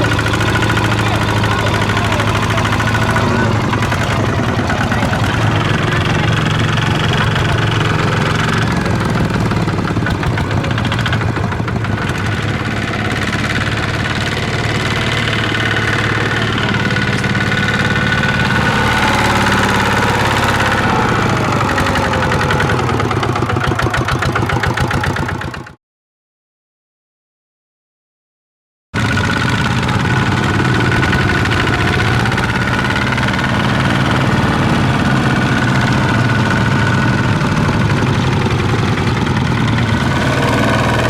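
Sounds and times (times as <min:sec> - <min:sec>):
diesel engine running: 0:00.0 - 0:25.7, 0:29.0 - 0:41.0.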